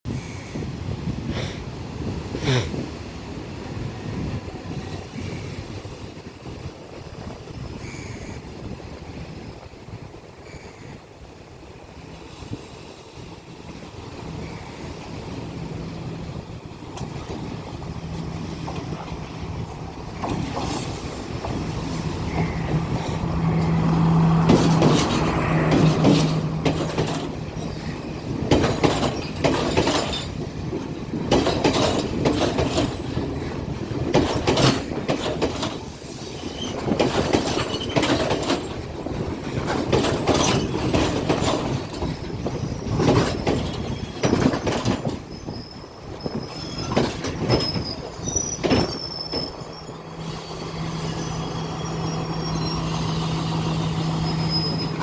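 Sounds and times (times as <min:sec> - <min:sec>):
train wheels clattering over rail joints: 0:11.4 - 0:55.0.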